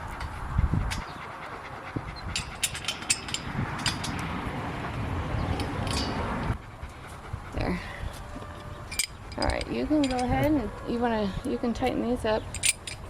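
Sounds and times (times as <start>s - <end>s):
dog panting: 0.0s - 3.5s, 6.5s - 11.7s
metal clamps and bolts clinking: 2.3s - 4.2s, 5.9s - 6.2s, 8.9s - 10.6s, 12.5s - 13.0s.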